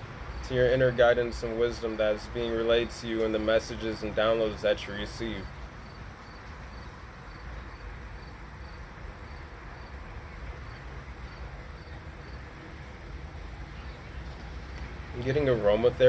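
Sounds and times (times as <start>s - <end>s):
insect chirping: 5.3s - 10.0s, 10.6s - 12.4s.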